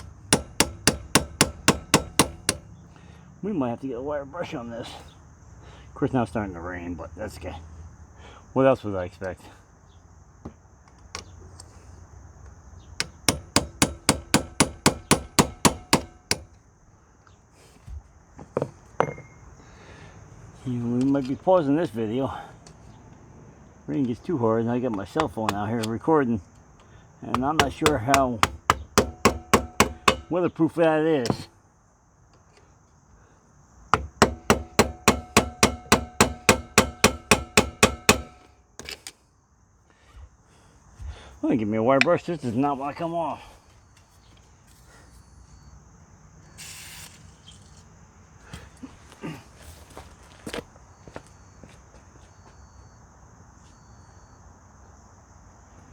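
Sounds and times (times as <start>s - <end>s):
hammer striking metal punch: 0.0s - 2.6s, 13.0s - 16.6s, 27.3s - 30.4s, 34.0s - 38.9s.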